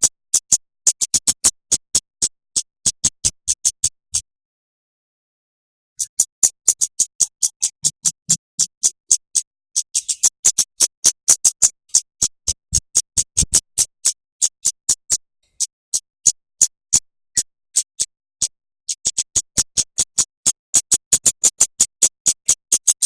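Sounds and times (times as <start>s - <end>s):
high-pitched bird chips: 9.8s - 10.4s.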